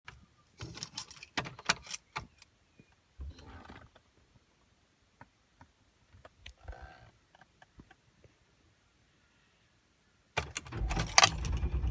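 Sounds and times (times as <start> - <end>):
car keys jangling: 10.4 - 11.8.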